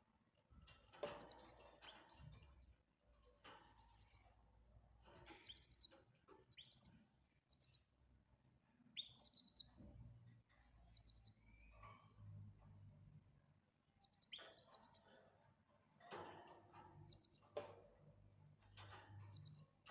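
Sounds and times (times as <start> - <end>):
canary chirping: 0.6 - 2.4, 3.5 - 4.4, 5.0 - 8.1, 8.9 - 9.9, 10.8 - 12.4, 13.8 - 15.2, 17.0 - 17.6, 18.7 - 19.9.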